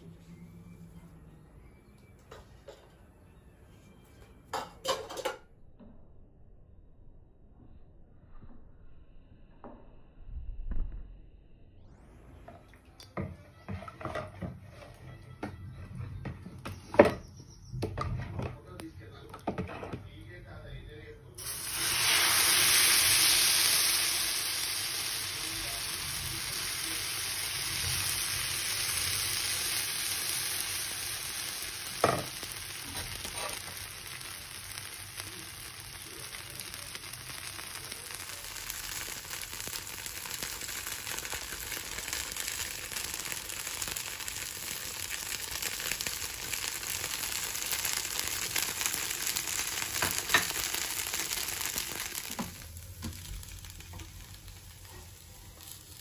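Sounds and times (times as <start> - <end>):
batter sizzling on a hot pan: 21.4 - 56.0.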